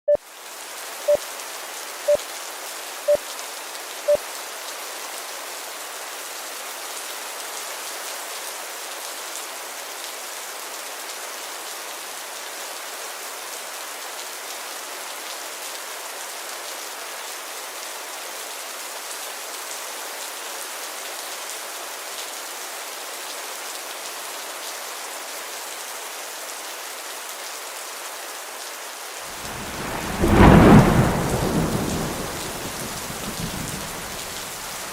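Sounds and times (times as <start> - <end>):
heavy rain hiss: 21.6 - 34.9
low thunder rumble: 29.4 - 34.6.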